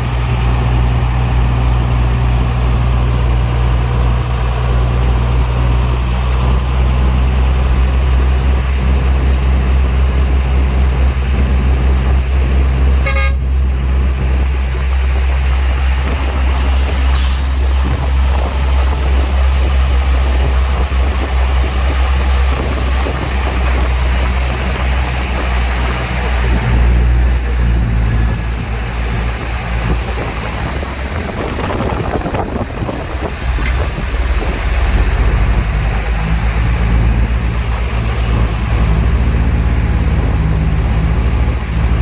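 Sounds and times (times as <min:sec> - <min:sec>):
heavy diesel engine droning: 0:00.0 - 0:42.0.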